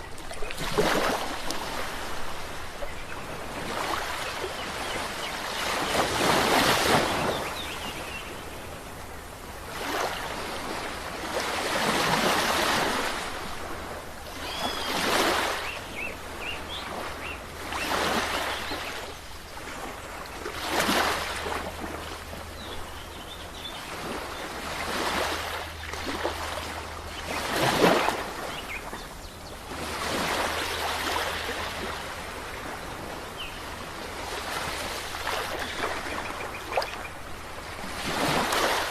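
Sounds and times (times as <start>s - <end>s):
sea waves breaking on shore: 0.0s - 38.9s.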